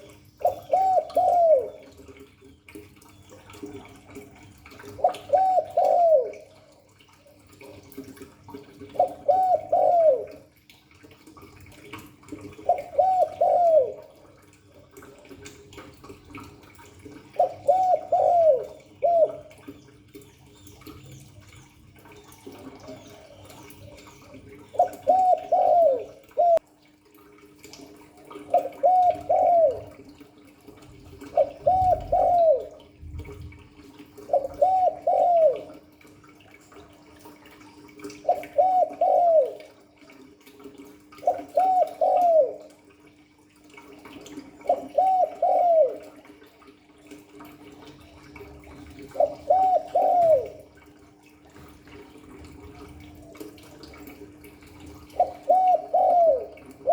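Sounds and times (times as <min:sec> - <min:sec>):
dove cooing: 0:00.0 - 0:02.2, 0:03.4 - 0:10.6, 0:12.4 - 0:14.6, 0:16.3 - 0:20.2, 0:22.2 - 0:26.6, 0:28.2 - 0:36.0, 0:37.8 - 0:42.9, 0:44.1 - 0:46.7, 0:48.6 - 0:54.2, 0:54.8 - 0:56.9.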